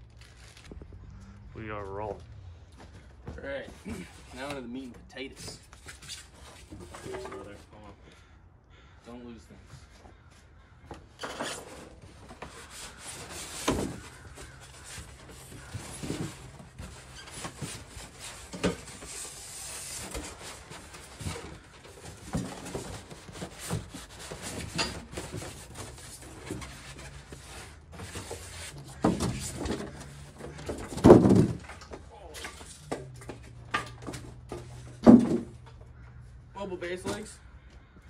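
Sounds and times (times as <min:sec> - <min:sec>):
cardboard packaging rustling: 0:00.0 - 0:01.0, 0:11.3 - 0:31.9.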